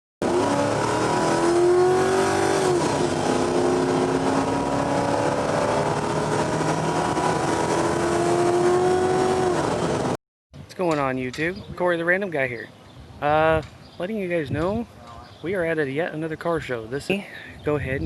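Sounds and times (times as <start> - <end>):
car engine at high revs: 0.2 - 10.2.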